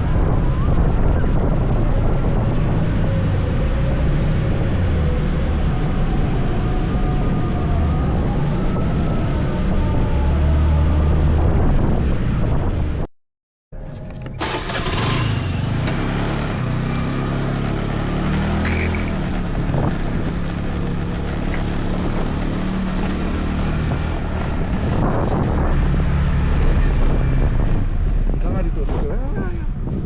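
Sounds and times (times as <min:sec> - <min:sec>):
wind noise on microphone: 0:00.0 - 0:13.1, 0:16.4 - 0:30.0
motor scooter engine: 0:13.9 - 0:27.4.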